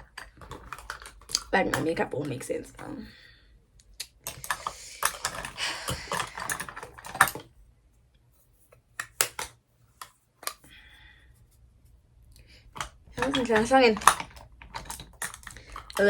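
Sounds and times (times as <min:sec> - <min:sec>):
makeup products rustling and clicking: 0:00.0 - 0:03.2, 0:03.8 - 0:07.6, 0:08.7 - 0:10.7, 0:12.3 - 0:16.0.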